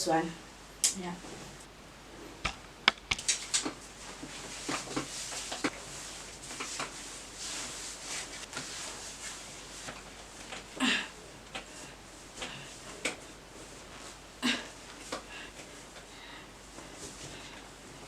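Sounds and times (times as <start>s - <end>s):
sharp clicks: 2.4s - 3.8s
fabric rustling: 3.8s - 10.7s, 11.7s - 16.0s.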